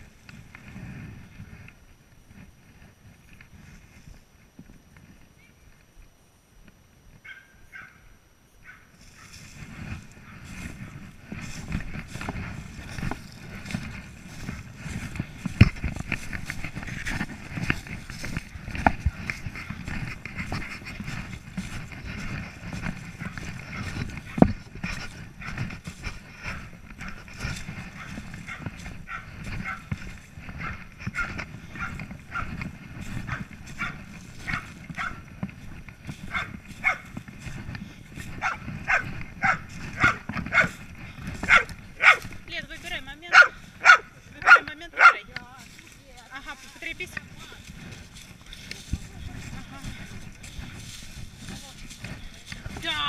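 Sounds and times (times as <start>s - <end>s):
dog barking: 7.2s - 8.0s, 8.6s - 9.3s, 27.9s - 29.9s, 30.6s - 32.5s, 33.3s - 35.2s, 36.3s - 37.1s, 38.4s - 40.8s, 41.4s - 42.3s, 43.3s - 45.3s.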